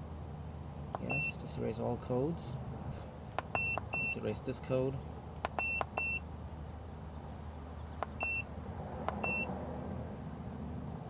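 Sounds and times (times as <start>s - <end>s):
low steady hum: 0.0s - 11.0s
short high beeps: 1.0s - 1.3s.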